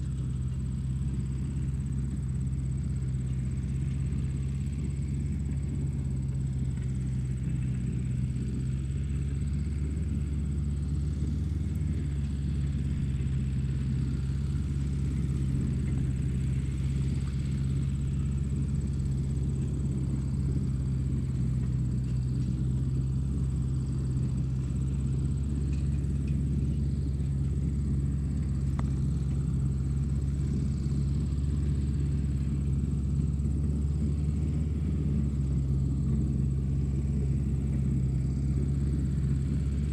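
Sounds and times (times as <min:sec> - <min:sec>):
low motor rumble: 0:00.0 - 0:39.9.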